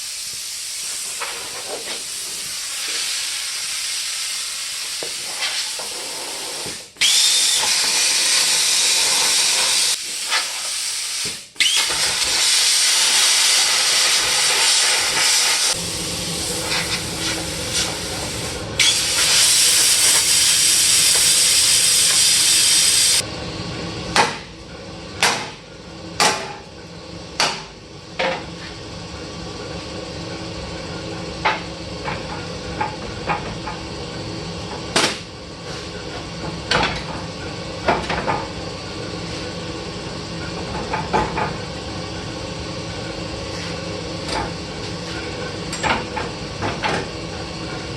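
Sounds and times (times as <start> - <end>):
metal-cutting tool hissing: 0.0 - 23.2.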